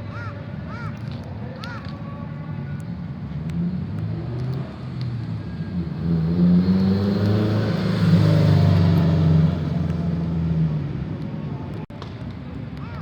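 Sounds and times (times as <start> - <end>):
car engine droning: 3.1 - 11.7.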